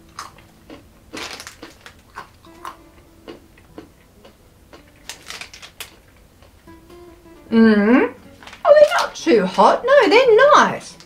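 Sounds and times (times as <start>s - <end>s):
person chewing peanuts crunchily: 0.0s - 6.6s.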